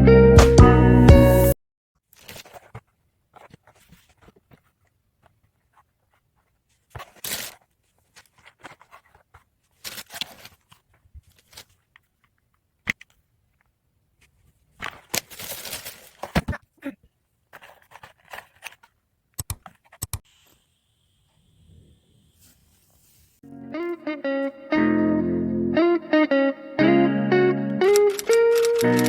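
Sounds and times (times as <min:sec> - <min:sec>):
guitar music: 0:00.0 - 0:01.6, 0:23.4 - 0:29.0
rustling and scraping handling: 0:02.0 - 0:20.6, 0:22.2 - 0:23.4
sharp ticks: 0:27.9 - 0:29.0.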